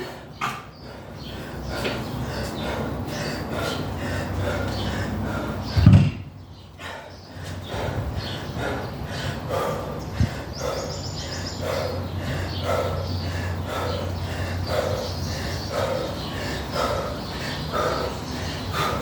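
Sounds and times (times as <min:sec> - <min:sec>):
thud: 0:05.8 - 0:06.3.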